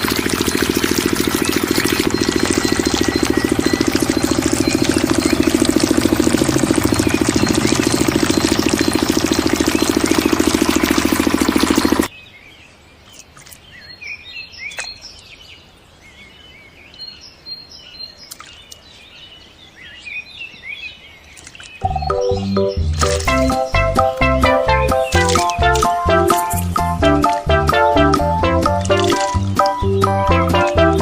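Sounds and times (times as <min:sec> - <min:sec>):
diesel water pump engine running: 0:00.0 - 0:12.1, 0:21.8 - 0:31.0
birds chirping: 0:00.0 - 0:31.0.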